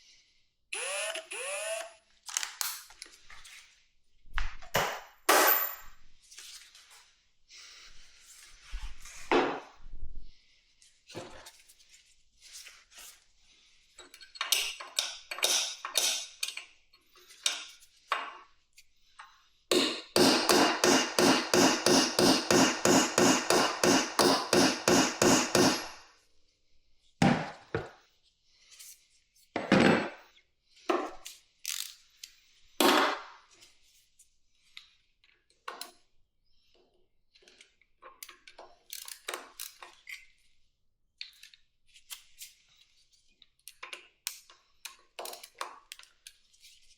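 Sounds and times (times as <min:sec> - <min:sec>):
hand tool knocks and scrapes: 0:19.2 - 0:26.0.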